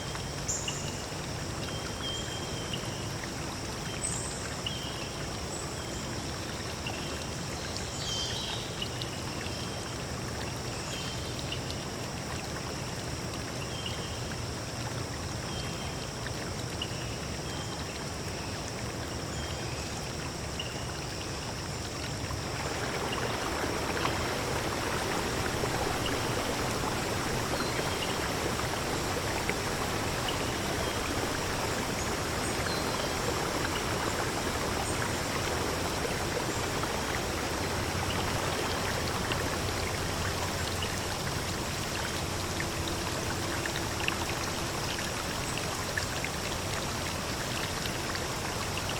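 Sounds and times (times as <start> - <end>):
stream water rushing: 14.2 - 48.9.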